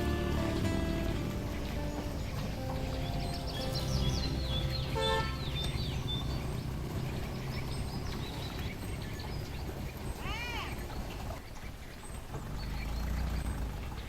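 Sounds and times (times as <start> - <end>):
steady low rumble: 0.0 - 10.0
small birds chirping: 0.0 - 14.0.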